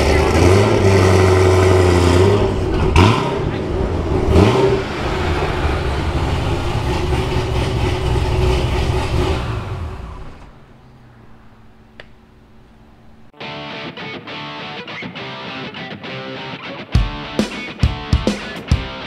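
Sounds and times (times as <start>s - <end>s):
car engine rumbling: 0.0s - 13.4s.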